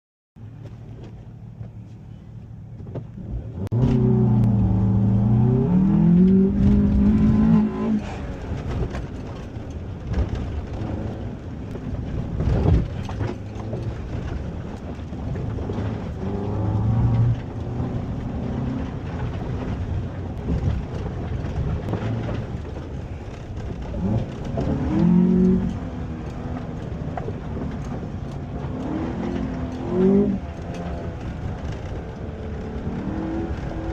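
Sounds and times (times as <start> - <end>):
car engine revving: 3.1 - 33.9
knocks and rattles: 8.2 - 33.9.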